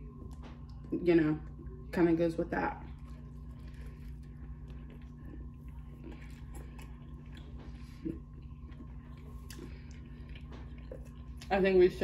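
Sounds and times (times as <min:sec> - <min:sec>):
steady low hum: 0:00.0 - 0:12.0
chewing with mouth closed: 0:02.9 - 0:11.6.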